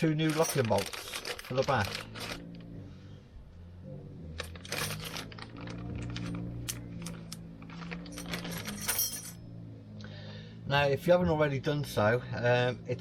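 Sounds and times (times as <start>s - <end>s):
metal parts clinking: 0.1s - 2.5s, 4.4s - 9.4s.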